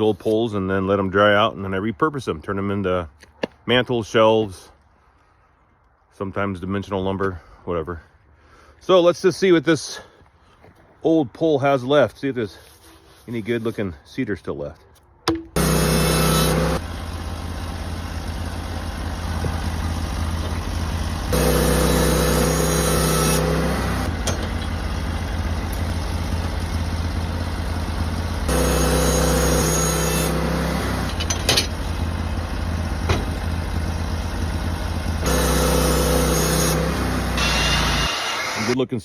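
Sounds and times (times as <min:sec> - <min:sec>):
sawmill engine cutting log: 0:15.3 - 0:38.8.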